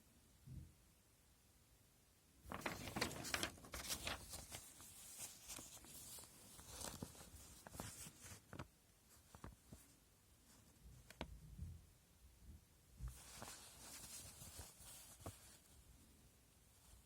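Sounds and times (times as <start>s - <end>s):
plastic packaging crinkling: 2.5s - 8.6s.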